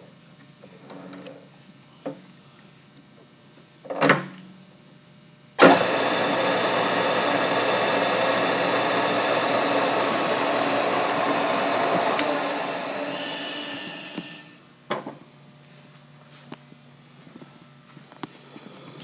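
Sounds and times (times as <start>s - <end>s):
metal lathe motor running: 5.6s - 14.6s
steady machine tones: 5.6s - 14.7s.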